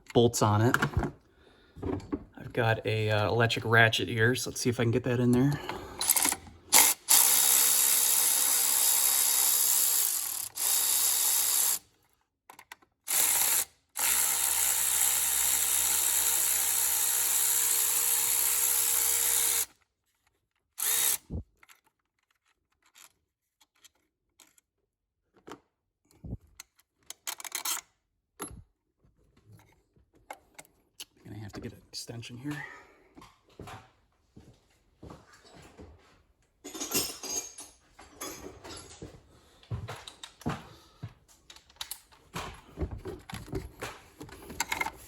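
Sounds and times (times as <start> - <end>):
electric ratchet motor whine: 6.8 - 11.8, 13.1 - 19.7, 20.8 - 21.4.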